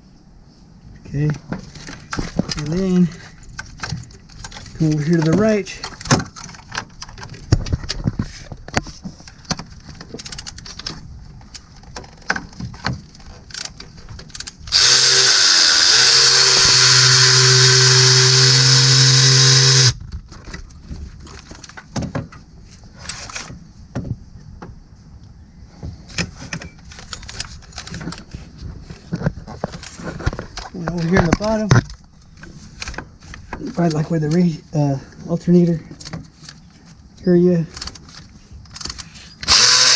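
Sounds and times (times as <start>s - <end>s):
cordless power tool running: 14.7s - 20.0s, 39.4s - 39.9s.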